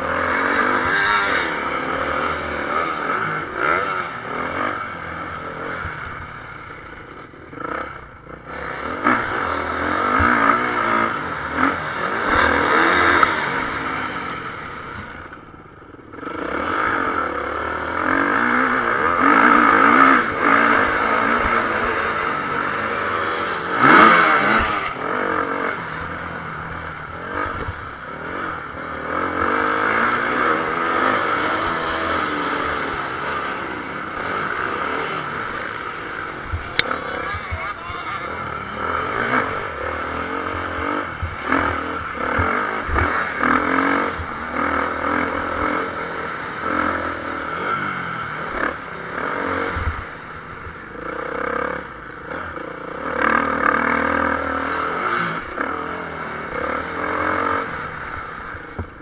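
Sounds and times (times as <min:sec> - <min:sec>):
motocross bike engines revving: 0:00.0 - 0:59.0
motorbike passing close: 0:00.0 - 0:59.0.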